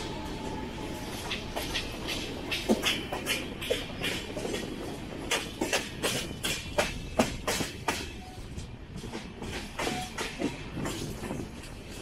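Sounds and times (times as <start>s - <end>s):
train low rumble: 0.0s - 12.0s
train wheels clacking over rail joints: 1.2s - 12.0s.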